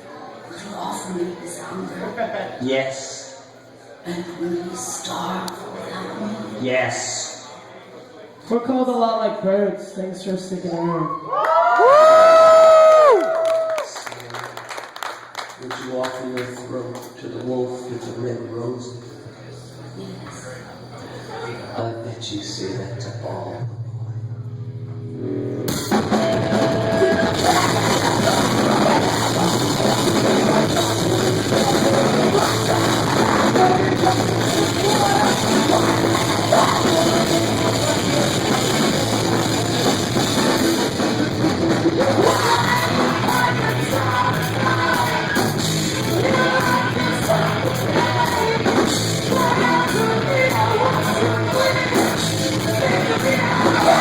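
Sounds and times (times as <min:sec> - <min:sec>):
distorted guitars: 0:23.1 - 0:54.0
live rock band: 0:25.0 - 0:54.0
drum kit: 0:25.4 - 0:54.0
person singing: 0:26.1 - 0:41.0, 0:41.6 - 0:54.0.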